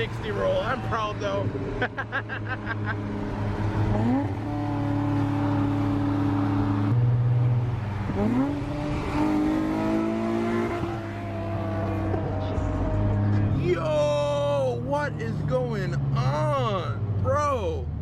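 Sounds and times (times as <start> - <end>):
car engine accelerating: 0.0 - 17.3.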